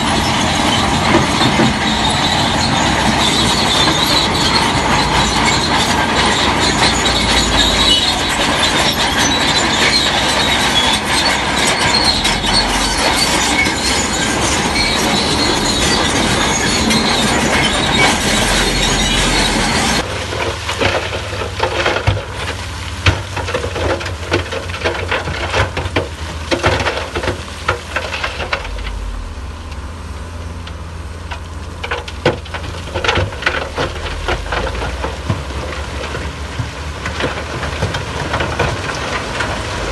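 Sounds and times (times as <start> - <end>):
knocks and clanks: 0.0 - 29.9, 30.6 - 39.9
bulldozer tracks squealing and clattering: 0.0 - 39.9
diesel engine running: 0.0 - 39.9.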